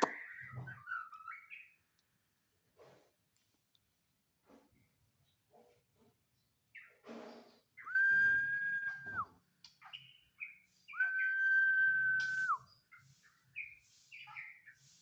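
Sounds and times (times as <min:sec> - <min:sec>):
songbird whistling and chirping: 0:00.0 - 0:01.8, 0:07.8 - 0:15.0.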